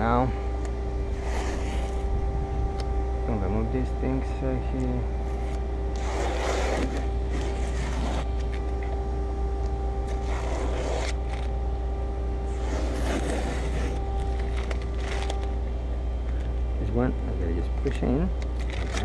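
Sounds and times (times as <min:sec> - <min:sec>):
steady low hum: 0:00.0 - 0:19.0
plastic trim scraping and rustling: 0:05.2 - 0:08.8, 0:12.5 - 0:15.5.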